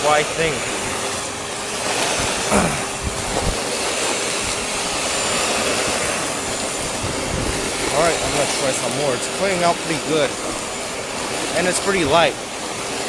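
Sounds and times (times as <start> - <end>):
vacuum cleaner motor whining: 0.0 - 13.0.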